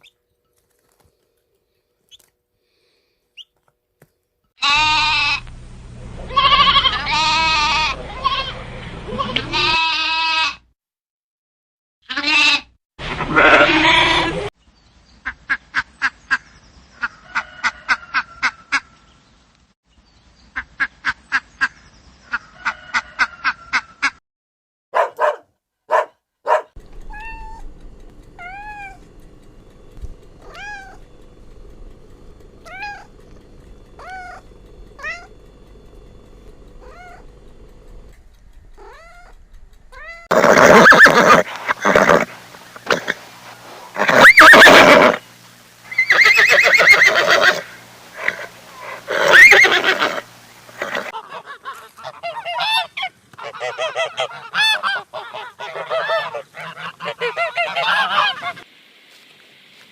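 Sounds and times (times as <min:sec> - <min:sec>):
loud animal calls: 0:06.2 - 0:10.4, 0:25.9 - 0:58.6
cat meowing: 0:27.0 - 0:27.6, 0:28.4 - 0:29.1, 0:30.4 - 0:31.0, 0:32.6 - 0:33.1, 0:34.0 - 0:34.4, 0:35.0 - 0:35.3, 0:36.8 - 0:37.2, 0:38.8 - 0:39.3.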